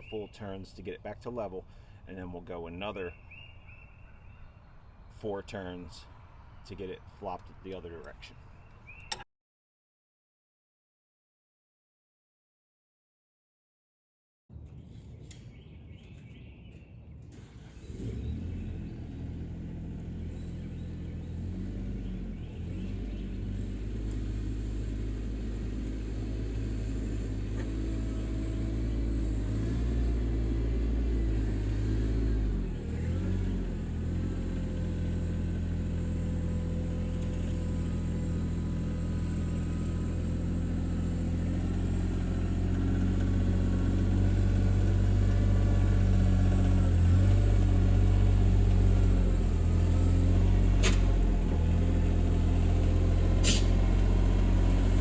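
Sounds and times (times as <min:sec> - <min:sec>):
tractor diesel engine running: 0:17.3 - 0:55.0.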